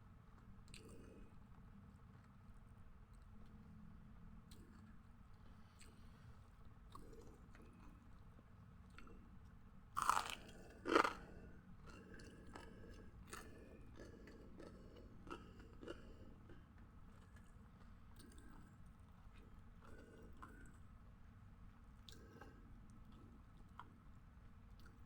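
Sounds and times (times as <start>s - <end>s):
chewing: 0.4s - 1.5s, 4.5s - 20.9s, 22.0s - 24.0s
crunching bites: 10.0s - 11.3s.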